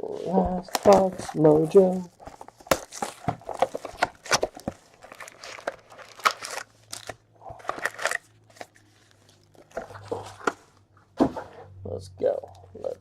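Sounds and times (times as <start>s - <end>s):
crinkling foil wrappers: 0.6s - 10.5s.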